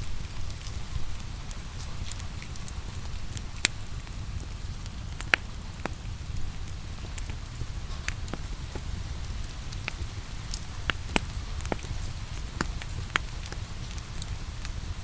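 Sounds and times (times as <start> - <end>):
falling rain: 0.0 - 15.0
wood fire crackling: 0.0 - 15.0.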